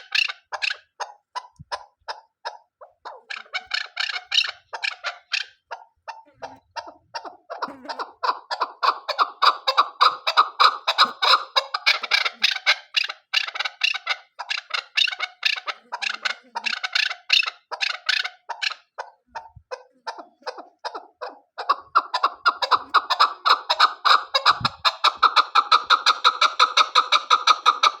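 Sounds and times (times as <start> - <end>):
partridge clucking calls: 0.0 - 28.0.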